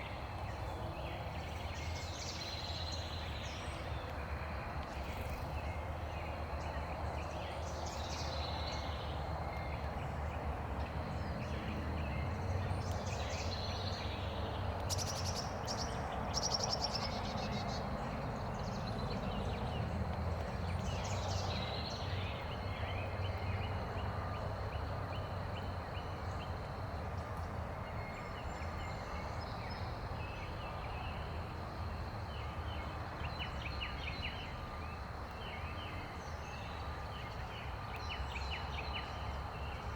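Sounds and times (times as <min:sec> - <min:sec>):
small birds chirping: 0:00.0 - 0:24.0
outdoor background rush: 0:00.0 - 0:39.9.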